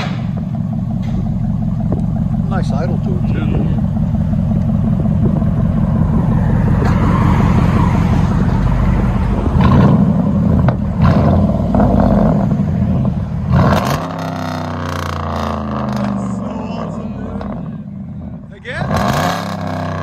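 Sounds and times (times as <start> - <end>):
loud vee eight engine revving: 0.0 - 20.0.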